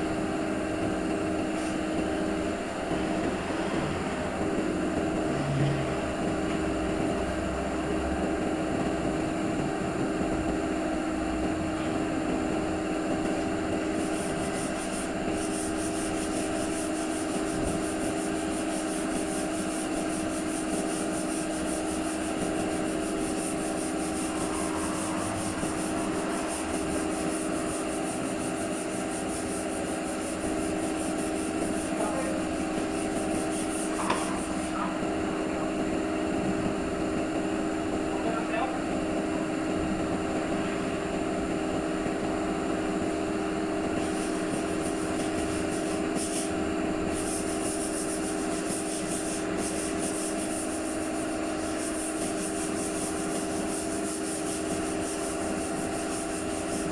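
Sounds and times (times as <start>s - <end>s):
motor machine humming: 19.9s - 36.6s
high-pitched buzz: 20.8s - 34.7s.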